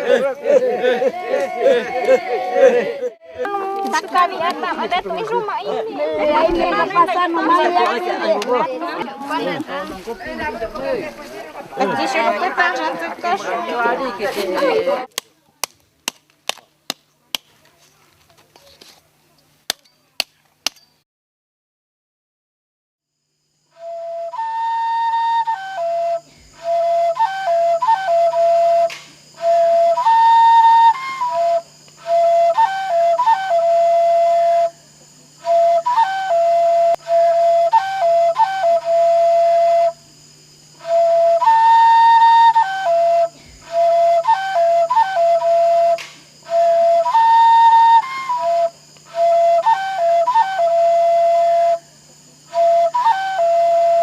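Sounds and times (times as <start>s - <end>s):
flute-like melody: 23.7s - 34.8s, 35.4s - 40.1s, 40.7s - 51.9s, 52.5s - 54.0s.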